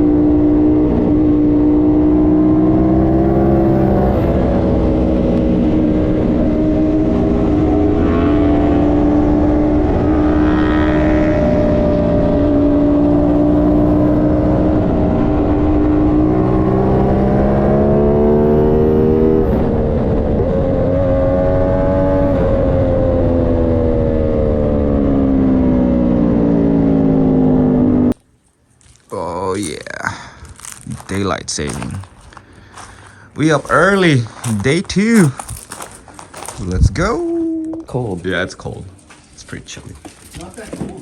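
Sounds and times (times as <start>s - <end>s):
motorcycle engine revving: 0.0s - 28.2s.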